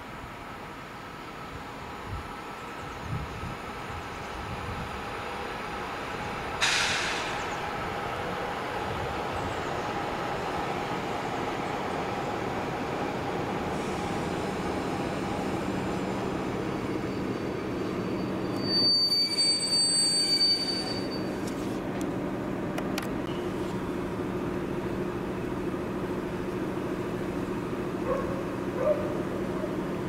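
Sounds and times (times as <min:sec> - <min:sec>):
diesel locomotive engine humming: 0:00.0 - 0:30.0
train wheels rumbling on rails: 0:01.5 - 0:30.0
high metallic squeal: 0:16.7 - 0:21.5.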